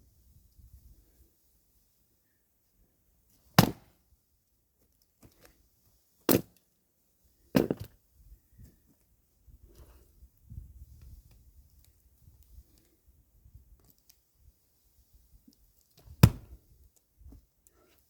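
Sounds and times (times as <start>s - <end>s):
axe striking logs: 3.6s - 4.0s, 6.3s - 6.5s, 7.6s - 7.9s, 16.1s - 16.6s.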